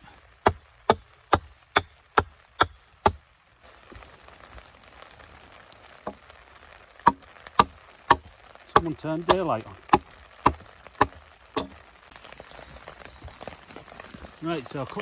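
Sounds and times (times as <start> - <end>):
axe chopping wooden post: 0.4 - 3.2, 7.0 - 11.8.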